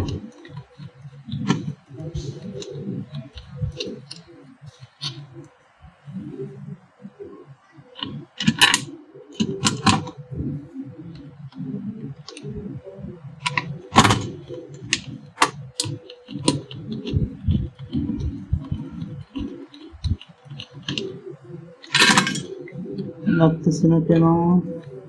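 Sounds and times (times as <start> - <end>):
iron parts clicking and knocking: 0.0 - 5.3, 8.0 - 10.2, 13.4 - 21.2, 21.8 - 22.8.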